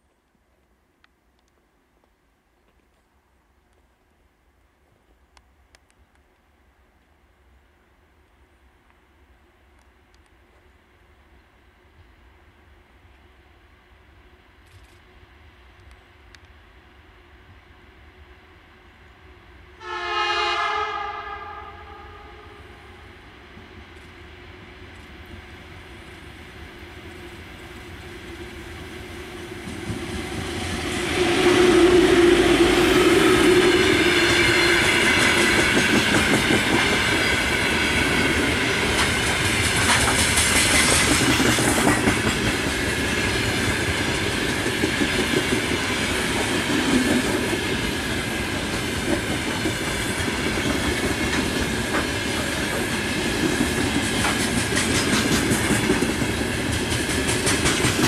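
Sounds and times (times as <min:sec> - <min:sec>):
electric locomotive passing: 0:07.5 - 0:58.0
wheels clicking over rail joints: 0:38.6 - 0:45.8, 0:48.6 - 0:58.0.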